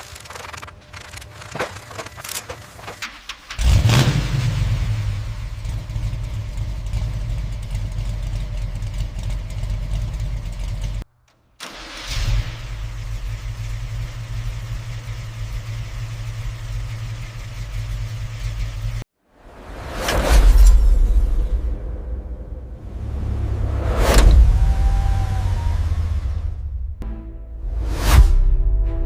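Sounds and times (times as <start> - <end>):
car engine idling: 0.1 - 19.1
engine surge: 11.6 - 28.5.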